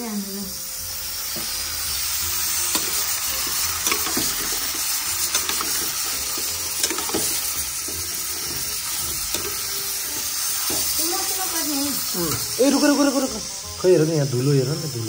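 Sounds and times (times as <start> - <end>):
meat sizzling in oil: 0.0 - 15.0
spatula clicking and knocking: 2.7 - 11.0.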